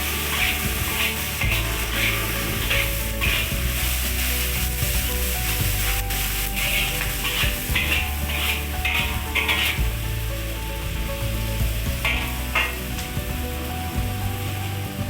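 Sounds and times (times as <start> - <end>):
food sizzling in a hot pan: 0.0 - 15.0
stirring strokes in pan: 0.0 - 15.0.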